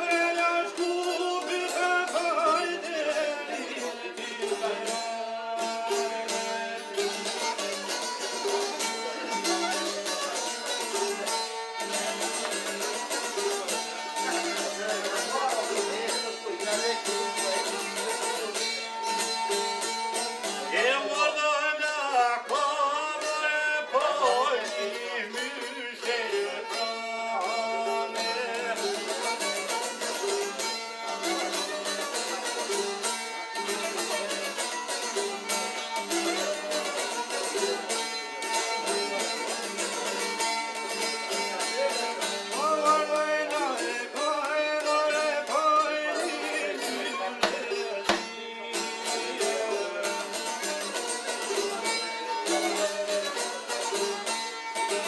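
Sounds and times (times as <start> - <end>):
person singing folk song: 0.0 - 55.0
string accompaniment: 0.0 - 55.0.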